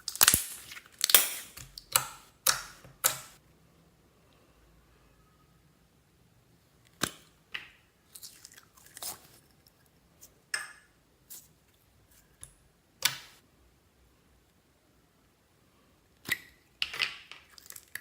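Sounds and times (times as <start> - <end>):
slime popping and crackling: 0.0 - 3.4.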